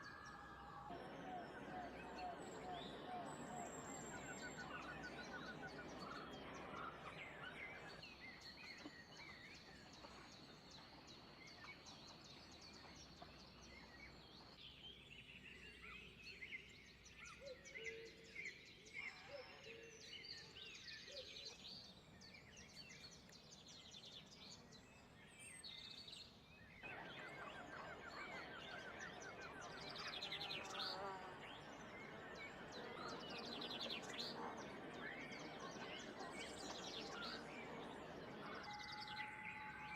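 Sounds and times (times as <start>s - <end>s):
birds chirping: 0.0s - 14.6s, 24.9s - 39.9s.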